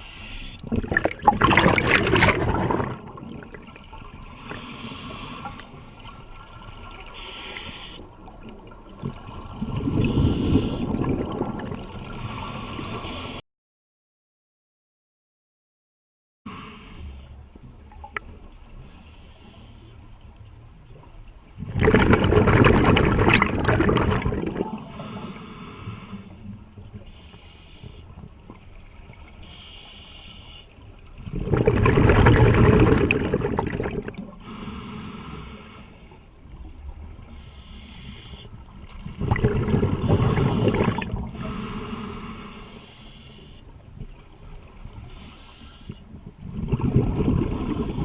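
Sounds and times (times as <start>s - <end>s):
regulator inhalation hiss: 0.0s - 0.6s, 7.2s - 8.0s, 27.1s - 28.0s, 29.4s - 30.7s, 41.3s - 43.7s, 45.1s - 46.0s
exhaled bubbles underwater: 0.6s - 4.6s, 8.3s - 12.3s, 21.6s - 25.2s, 31.2s - 34.4s, 38.8s - 41.5s, 46.3s - 48.0s.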